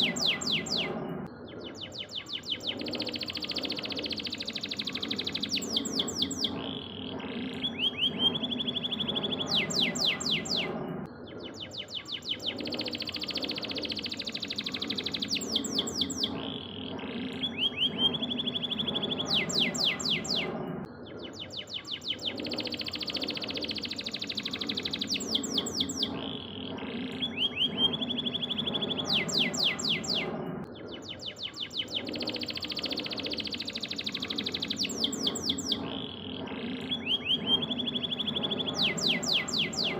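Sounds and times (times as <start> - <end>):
canary singing: 0.0 - 10.8, 11.6 - 20.6, 21.4 - 39.9.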